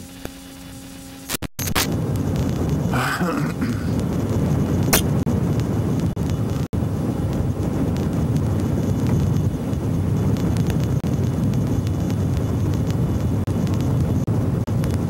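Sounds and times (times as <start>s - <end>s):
strong wind buffeting microphone: 1.8s - 15.0s.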